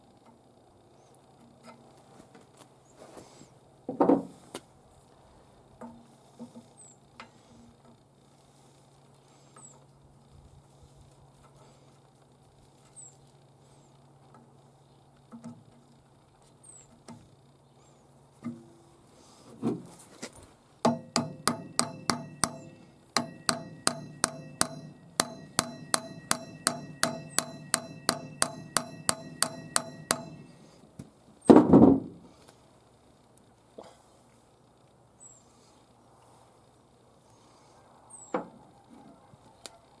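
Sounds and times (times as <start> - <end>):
hammer striking metal: 20.9 - 30.7.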